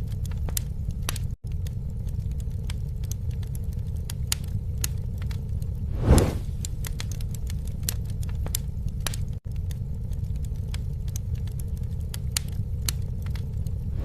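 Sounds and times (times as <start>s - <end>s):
campfire crackling: 0.0s - 14.0s
low rumble: 4.8s - 7.8s, 8.4s - 14.0s.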